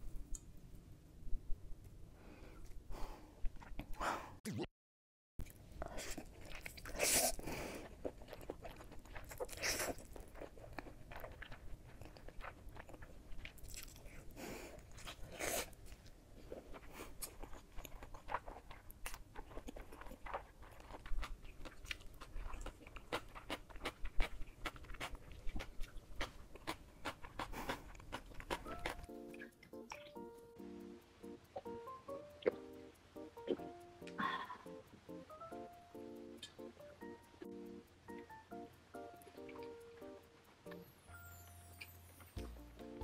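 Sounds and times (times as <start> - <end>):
crunchy chewing: 5.4 - 34.7.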